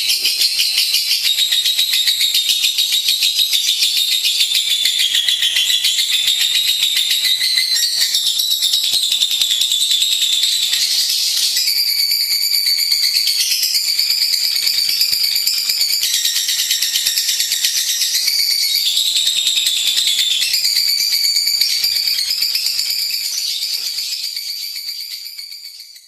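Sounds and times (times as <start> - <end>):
lovebird chattering trill: 0.0 - 11.6.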